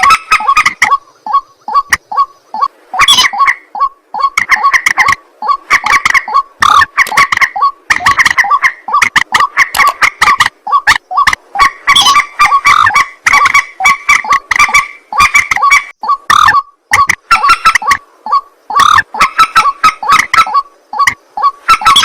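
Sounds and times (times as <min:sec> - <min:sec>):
waterbirds croaking calls: 0:00.0 - 0:22.0.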